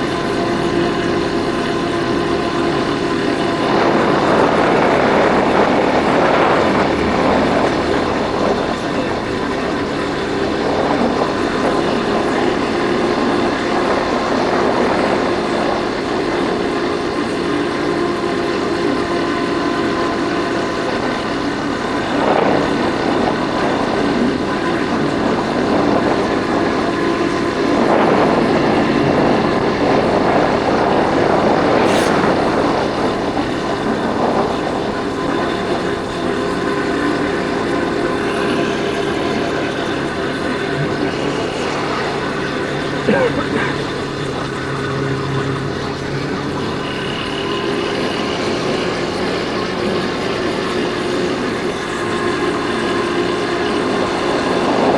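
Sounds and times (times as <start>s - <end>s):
wind and road noise: 0.0s - 54.9s
motorcycle engine running: 31.6s - 54.9s.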